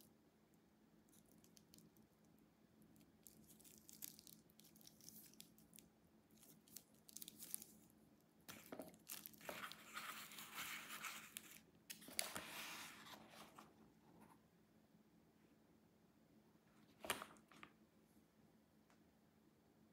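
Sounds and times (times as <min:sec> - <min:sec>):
packaging rustling and crinkling: 0:06.4 - 0:07.8, 0:08.5 - 0:13.7.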